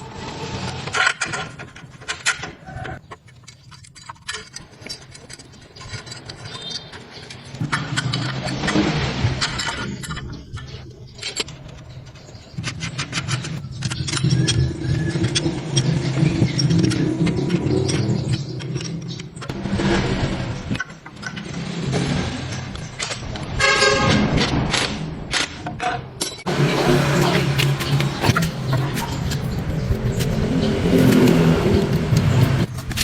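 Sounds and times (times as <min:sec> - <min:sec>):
engine running: 0:26.5 - 0:33.0.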